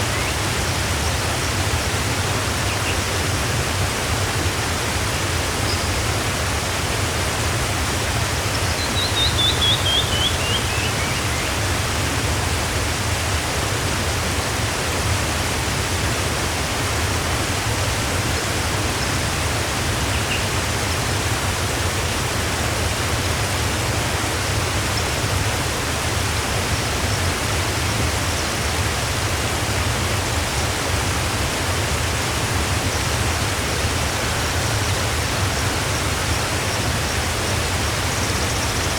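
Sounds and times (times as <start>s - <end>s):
waterfall rushing: 0.0s - 38.9s
bird chirping: 8.7s - 11.5s.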